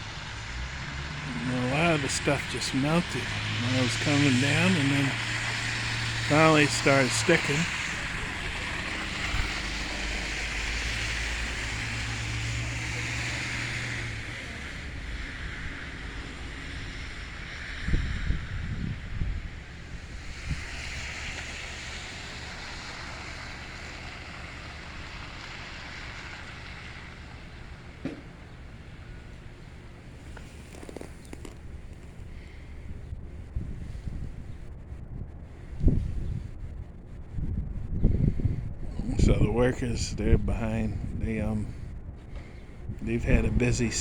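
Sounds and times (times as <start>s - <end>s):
tyre hiss of passing vehicles: 0.0s - 37.2s, 38.2s - 44.0s
wind thumps on microphone: 30.3s - 43.8s.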